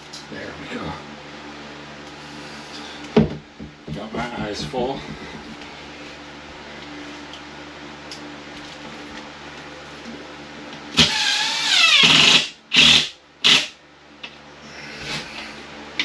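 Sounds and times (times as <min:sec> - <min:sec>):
power drill driving screws: 0:11.0 - 0:13.7.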